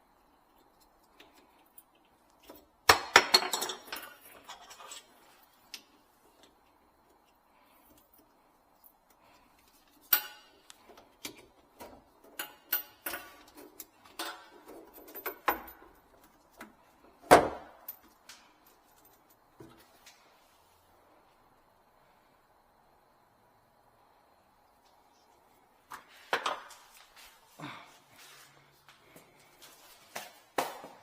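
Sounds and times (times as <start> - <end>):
tools and parts clicking: 0.5 - 16.8.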